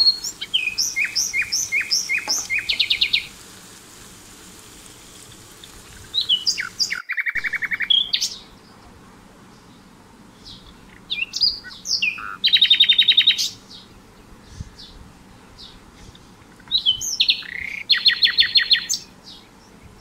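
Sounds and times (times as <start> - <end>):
songbird singing whistles: 0.0 - 3.3, 6.0 - 8.5, 16.7 - 19.4.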